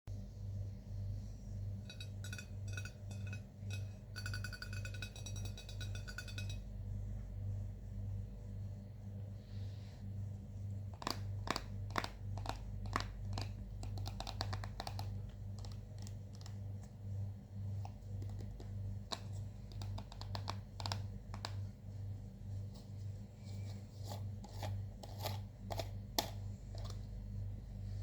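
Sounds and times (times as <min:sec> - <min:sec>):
low pulsing hum: 0:00.1 - 0:13.9, 0:20.6 - 0:28.0.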